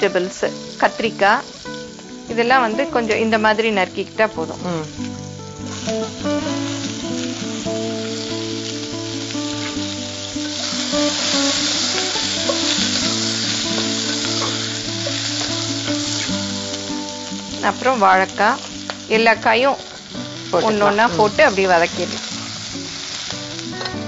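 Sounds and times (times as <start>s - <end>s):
vegetables frying in hot oil: 0.0s - 24.0s.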